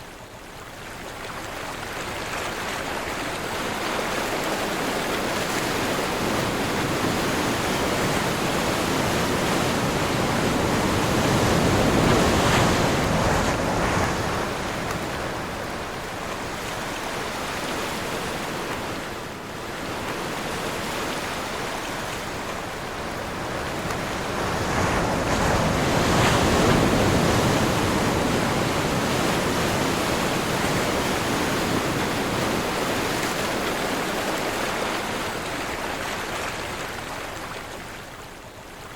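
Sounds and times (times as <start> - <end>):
sea waves breaking: 1.3 - 38.2
strong wind: 3.4 - 35.9.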